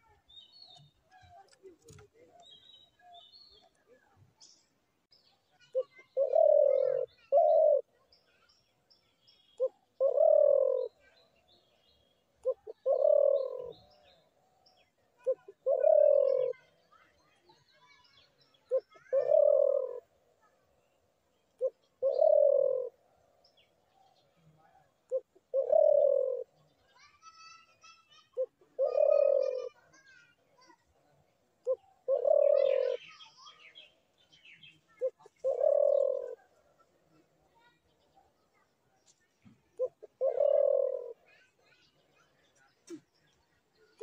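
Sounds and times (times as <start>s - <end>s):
small birds chirping: 0.0s - 44.0s
dove cooing: 5.7s - 8.0s, 9.6s - 11.1s, 12.4s - 14.1s, 15.2s - 16.8s, 18.6s - 20.1s, 21.6s - 23.0s, 24.6s - 26.6s, 28.3s - 29.9s, 31.6s - 33.2s, 34.9s - 37.3s, 39.7s - 41.5s.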